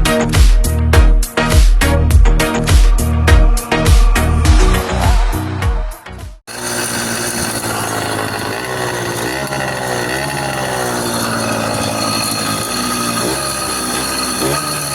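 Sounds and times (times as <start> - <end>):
small engine running: 6.5 - 14.9.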